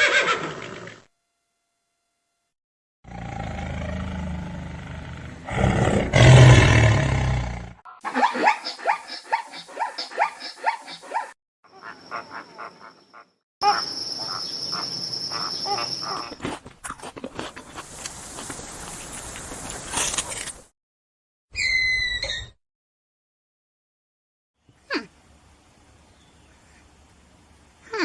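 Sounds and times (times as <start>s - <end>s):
big cat growling and roaring: 3.1s - 7.8s
animals calling in repeated notes: 7.9s - 16.5s.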